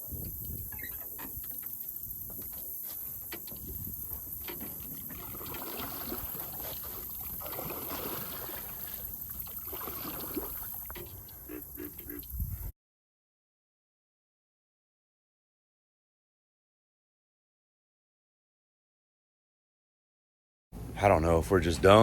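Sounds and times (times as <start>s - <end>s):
boat motor rumble: 3.2s - 12.6s
water rushing past hull: 3.6s - 12.1s.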